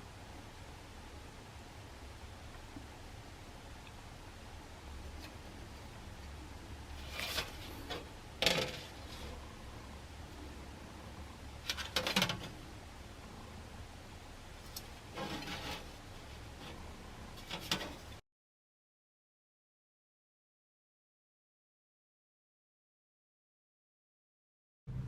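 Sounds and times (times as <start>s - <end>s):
low steady hum: 0.0s - 18.2s.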